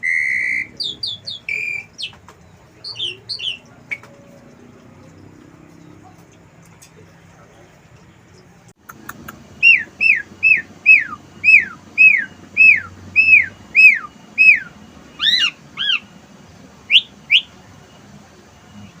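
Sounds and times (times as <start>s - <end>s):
starling singing whistles: 0.0s - 4.5s, 9.5s - 16.2s, 16.8s - 18.0s
harsh bird notes: 0.0s - 6.2s, 8.8s - 16.2s, 16.9s - 17.6s
short rising bird calls: 9.6s - 16.1s.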